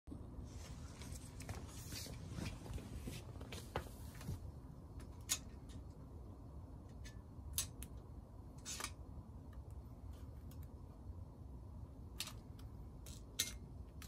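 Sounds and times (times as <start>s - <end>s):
tape measure clicks and scrapes: 8.6s - 9.0s, 12.2s - 14.0s.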